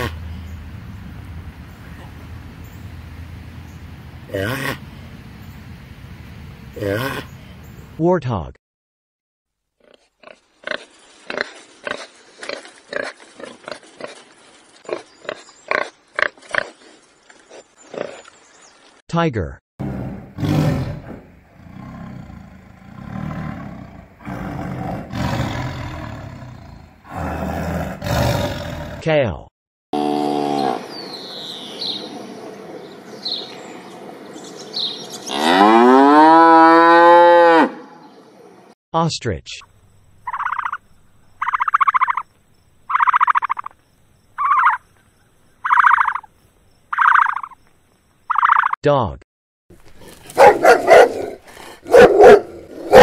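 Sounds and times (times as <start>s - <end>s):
tiger roaring and growling: 4.2s - 4.9s, 19.8s - 29.0s, 50.0s - 53.0s
animal rattling call: 40.2s - 42.3s, 42.9s - 43.8s, 44.4s - 44.8s, 45.6s - 46.3s, 46.9s - 47.6s, 48.3s - 48.8s.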